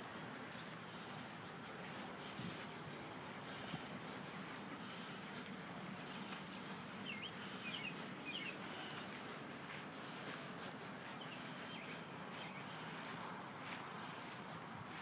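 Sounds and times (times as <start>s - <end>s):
low steady hiss: 0.0s - 14.9s.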